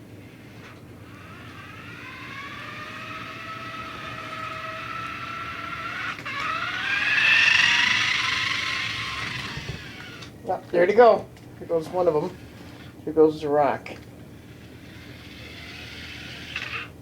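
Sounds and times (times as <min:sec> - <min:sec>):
toy car electric motor whining: 0:00.0 - 0:10.3, 0:14.4 - 0:17.0.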